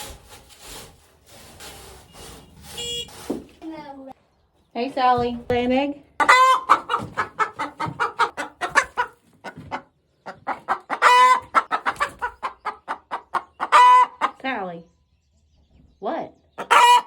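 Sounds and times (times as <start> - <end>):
hen cackling: 6.2 - 14.4, 16.6 - 17.0.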